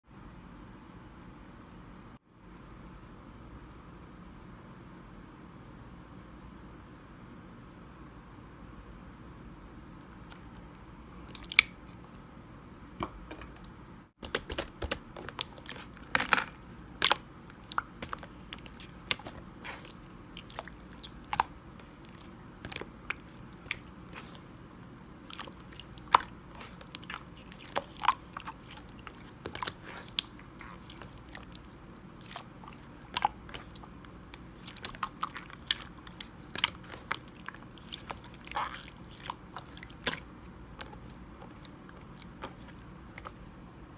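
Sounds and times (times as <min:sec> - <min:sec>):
slime squeezed by hand: 0:14.3 - 0:43.4.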